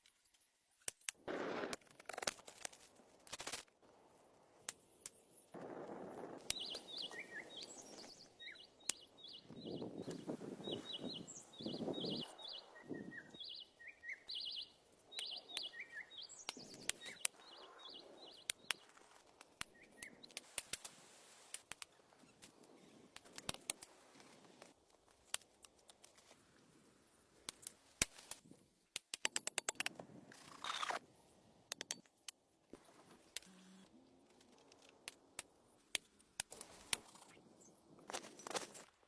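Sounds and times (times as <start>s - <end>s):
small birds chirping: 6.4s - 20.8s
sharp clicks and knocks: 27.5s - 30.0s.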